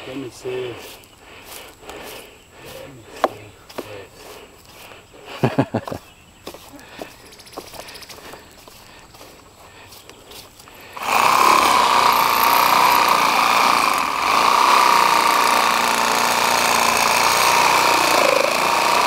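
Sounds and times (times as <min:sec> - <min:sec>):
electric power tool whining: 0:10.6 - 0:19.0.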